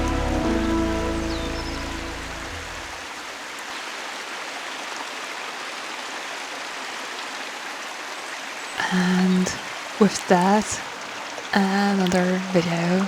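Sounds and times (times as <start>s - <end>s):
background music: 0.0s - 3.0s
creek water rushing: 0.0s - 13.0s.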